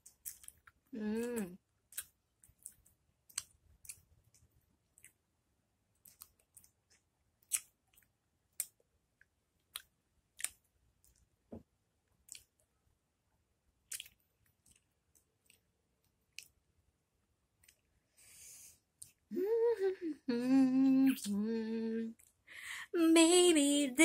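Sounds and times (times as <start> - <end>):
wet mouth chewing smacks: 13.9 - 15.6.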